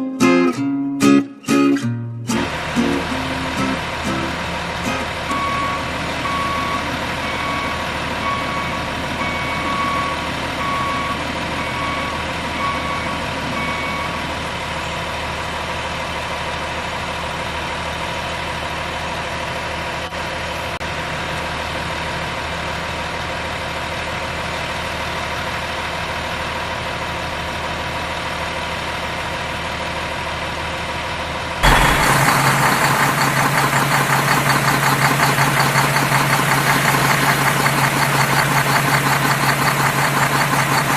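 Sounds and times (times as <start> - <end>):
loud rough engine: 2.3 - 40.9
truck engine running: 2.3 - 40.9
reversing beeper: 4.9 - 14.3, 31.6 - 40.9.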